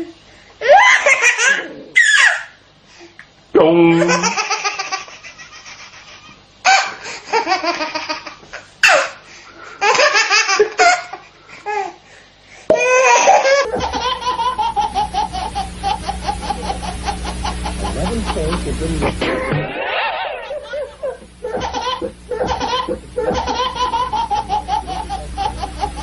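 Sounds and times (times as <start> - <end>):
person laughing: 3.9 - 4.4, 13.1 - 26.0.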